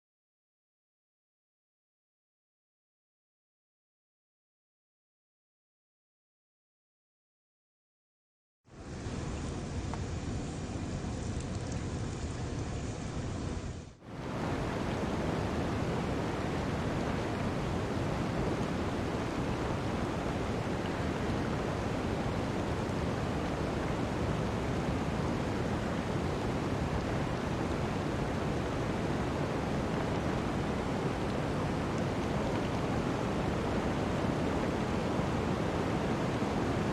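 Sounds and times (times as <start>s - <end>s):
steady rushing noise: 8.8s - 36.9s.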